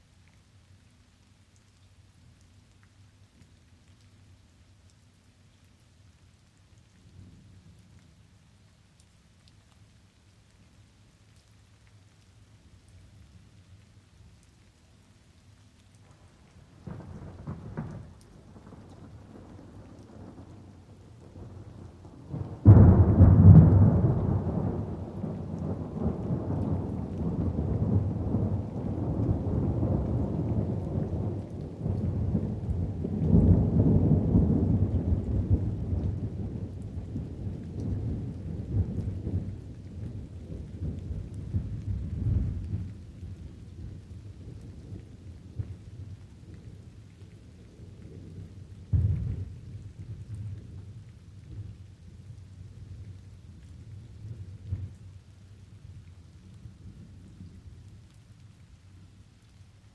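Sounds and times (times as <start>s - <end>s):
steady rain: 0.0s - 59.9s
rolling thunder: 16.8s - 46.2s, 48.9s - 50.4s.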